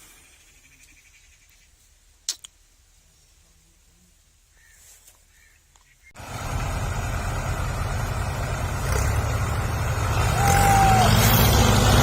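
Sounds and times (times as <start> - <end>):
tractor diesel engine: 6.2 - 12.0.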